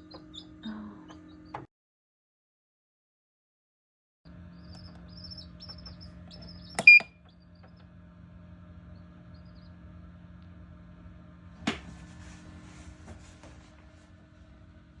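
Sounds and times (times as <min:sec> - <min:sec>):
incubator fan hum: 0:00.0 - 0:01.7, 0:04.3 - 0:15.0
chick peeping: 0:04.6 - 0:07.1
sharp click with beep: 0:06.8 - 0:07.1.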